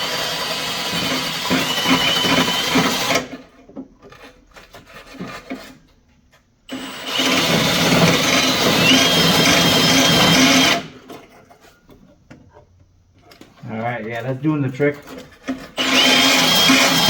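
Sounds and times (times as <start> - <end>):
power tool grinding metal: 6.7 - 11.0, 14.8 - 17.0.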